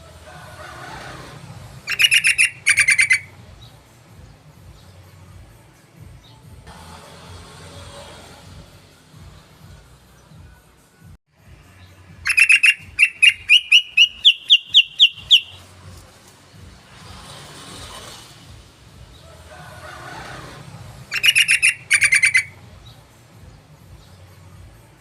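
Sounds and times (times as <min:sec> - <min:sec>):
bird song with chirping notes: 0:01.8 - 0:05.3, 0:11.6 - 0:15.8, 0:21.0 - 0:24.8.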